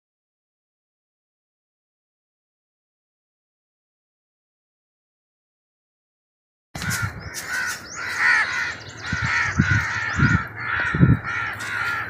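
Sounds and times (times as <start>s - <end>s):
crows cawing: 6.8s - 12.0s.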